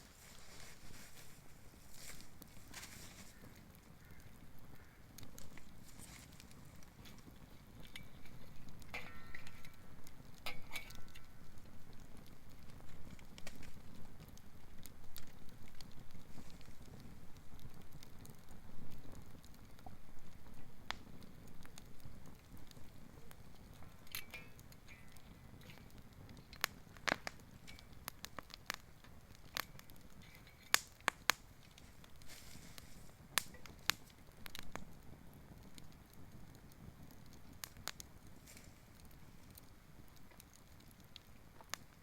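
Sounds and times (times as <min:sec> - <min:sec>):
fire crackling and popping: 0:00.0 - 0:42.0
fire low rumble: 0:00.0 - 0:42.0.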